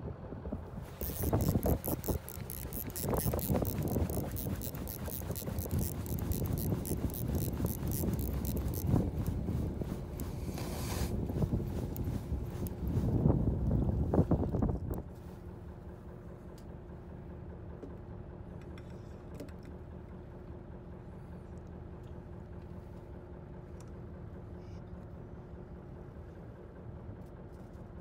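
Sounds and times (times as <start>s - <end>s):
boat engine humming: 0.6s - 14.8s
faint clicks: 0.9s - 10.7s.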